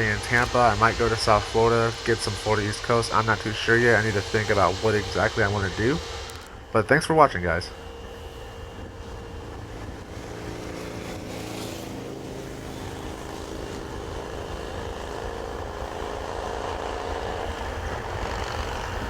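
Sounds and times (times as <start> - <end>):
heavy engine rumbling: 0.0 - 11.3.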